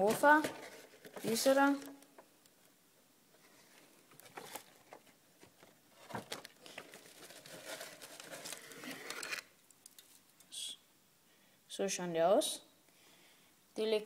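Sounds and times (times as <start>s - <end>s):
packaging crinkling: 5.9s - 10.2s.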